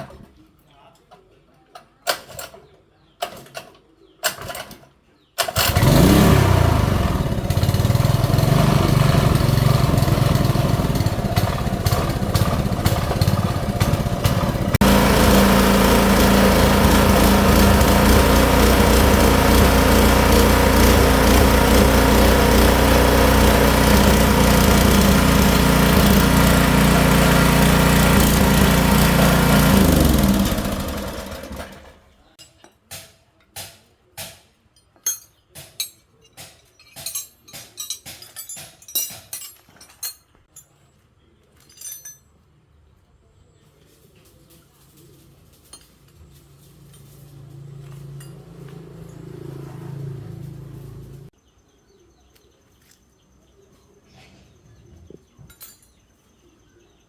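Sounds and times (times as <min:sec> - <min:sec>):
small gasoline engine running: 0:05.4 - 0:32.2, 0:46.4 - 0:51.3.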